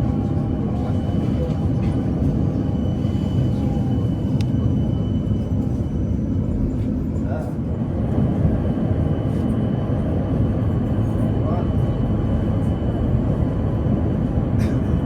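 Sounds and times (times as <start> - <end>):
tram cabin rumble and hum: 0.0 - 15.0.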